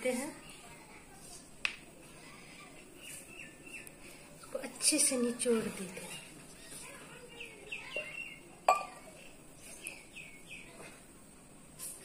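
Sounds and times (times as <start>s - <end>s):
bird chirping: 3.0s - 4.0s, 7.3s - 8.5s, 9.8s - 10.8s.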